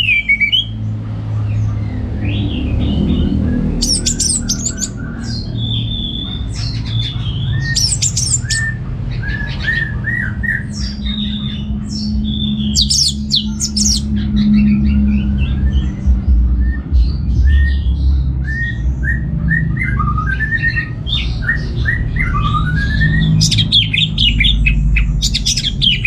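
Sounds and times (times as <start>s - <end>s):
bird twittering: 0.0s - 0.8s, 1.6s - 26.0s
low hum: 0.0s - 26.0s.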